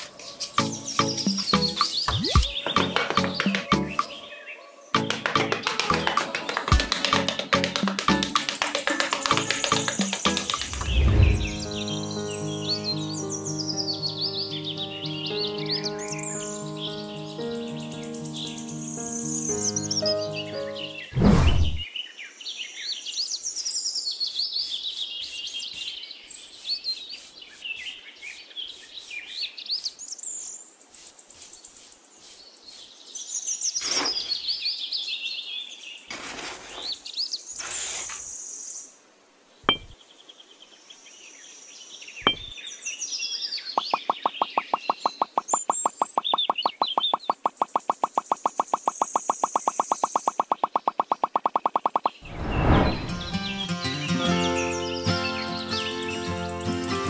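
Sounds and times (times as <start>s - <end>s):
small birds chirping: 0.0s - 21.2s, 21.8s - 57.0s
fast even ticking: 43.8s - 52.2s.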